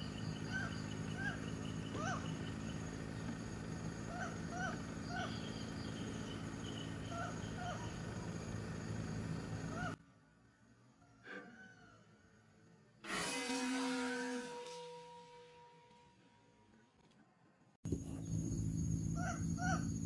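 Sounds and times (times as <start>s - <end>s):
low hum: 0.0s - 20.0s
short repeated animal calls: 11.0s - 12.2s
high insect-like buzz: 13.0s - 15.3s.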